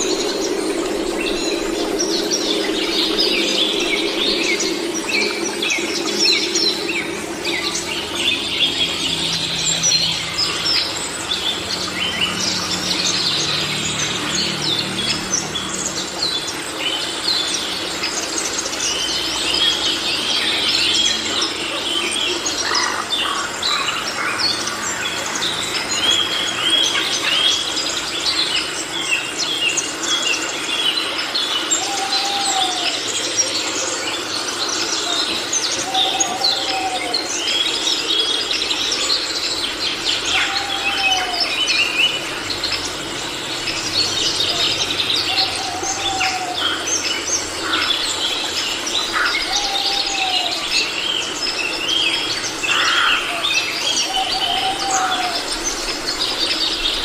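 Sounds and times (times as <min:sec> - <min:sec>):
low rising and falling bird call: 0:00.0 - 0:27.8, 0:31.5 - 0:57.0
birds chirping and calling: 0:00.0 - 0:57.0.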